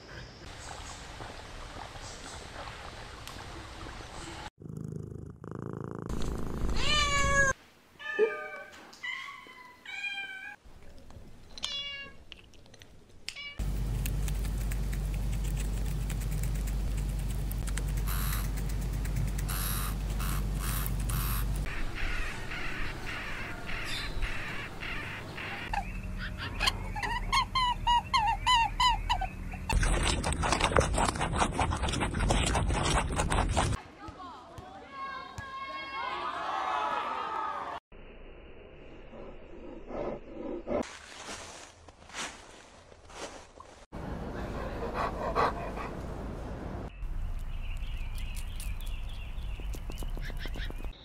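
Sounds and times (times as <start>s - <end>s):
rabbits crunching food pellets: 13.6s - 21.7s, 29.7s - 33.8s, 47.2s - 50.9s
dog panting: 44.4s - 46.1s.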